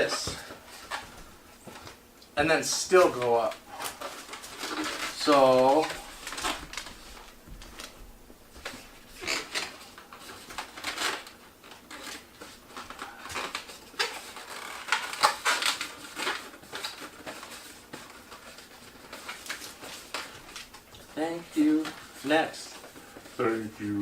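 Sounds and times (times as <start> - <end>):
balloons rubbing while twisted: 8.6 - 11.2, 11.8 - 24.0.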